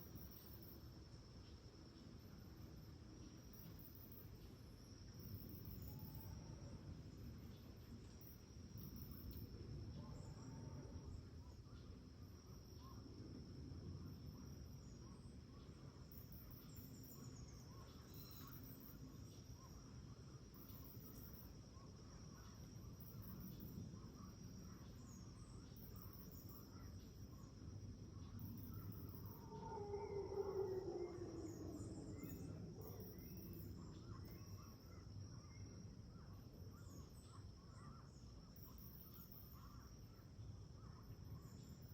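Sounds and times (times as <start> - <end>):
high insect whine: 0.0 - 41.9
insects chirping in rapid pulses: 0.0 - 41.9.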